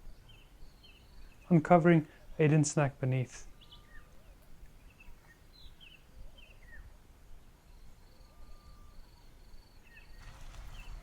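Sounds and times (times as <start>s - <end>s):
birds chirping: 0.0s - 11.0s
low background rumble: 10.2s - 11.0s.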